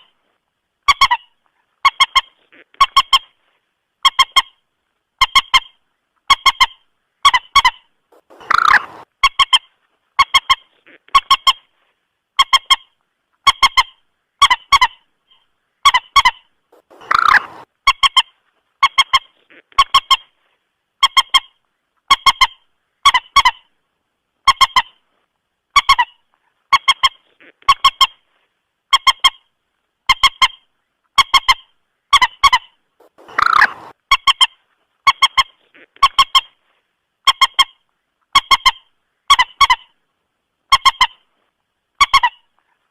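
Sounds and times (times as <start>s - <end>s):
moorhen clipped call notes: 5.2s - 11.7s, 12.4s - 20.4s, 30.1s - 36.6s
harsh bird call: 8.2s - 9.1s, 16.8s - 17.7s, 33.1s - 33.9s.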